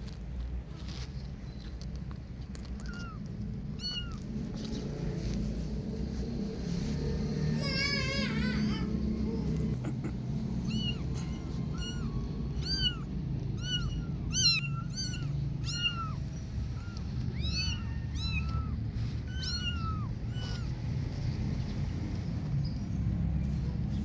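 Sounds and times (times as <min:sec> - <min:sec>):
low background rumble: 0:00.0 - 0:24.0
kitten meowing: 0:02.6 - 0:04.6, 0:10.6 - 0:20.9.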